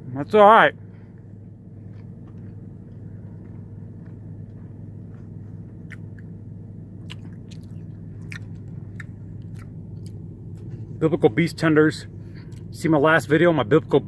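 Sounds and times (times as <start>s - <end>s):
steady low hum: 0.0s - 14.0s
person chewing fried chicken: 1.2s - 11.0s, 12.2s - 12.7s.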